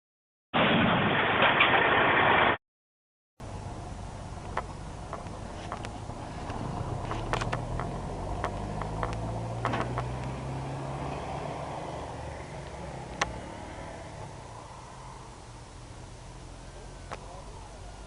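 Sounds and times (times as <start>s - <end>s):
engine humming: 3.4s - 18.0s
sharp clicks and knocks: 4.4s - 10.4s.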